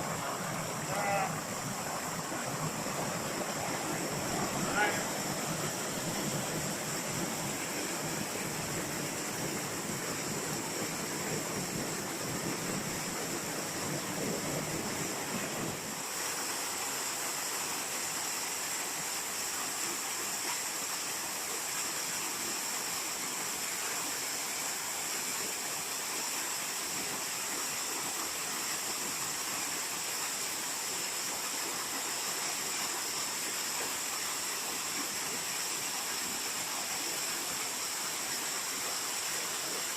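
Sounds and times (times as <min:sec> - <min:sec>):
waterfall rushing: 0:00.0 - 0:18.7.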